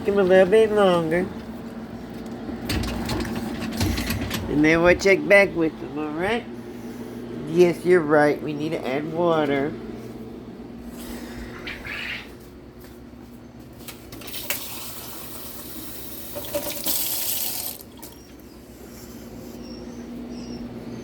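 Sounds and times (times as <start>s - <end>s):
steady low hum: 0.0s - 14.3s, 17.8s - 21.0s
water running from a tap: 14.2s - 18.0s.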